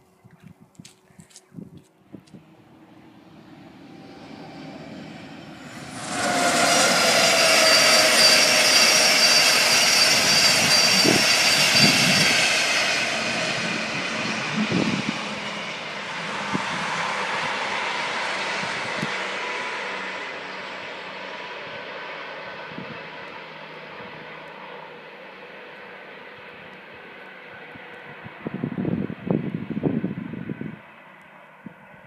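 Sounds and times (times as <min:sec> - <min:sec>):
train passing at speed: 0:02.3 - 0:32.0.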